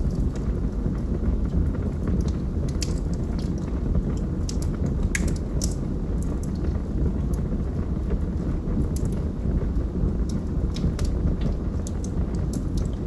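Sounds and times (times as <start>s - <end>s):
fire crackles and pops: 0.0s - 13.0s
fire flames rumbling: 0.0s - 13.0s.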